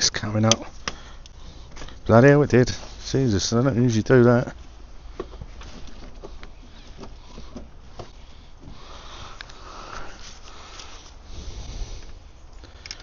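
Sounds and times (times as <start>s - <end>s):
steady rain hiss: 7.8s - 12.9s.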